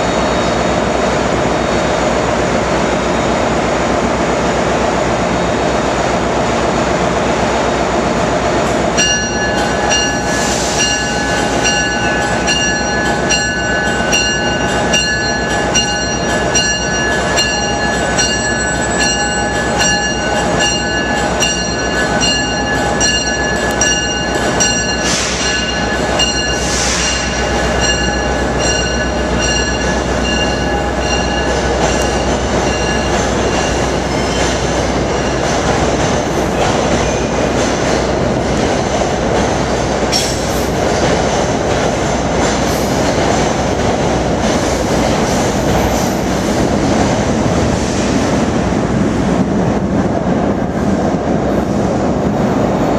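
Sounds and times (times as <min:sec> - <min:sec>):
train rolling past: 0:00.0 - 0:52.9
bell ringing: 0:09.0 - 0:34.3
wheels squealing on rails: 0:09.0 - 0:41.4, 0:44.1 - 0:48.5.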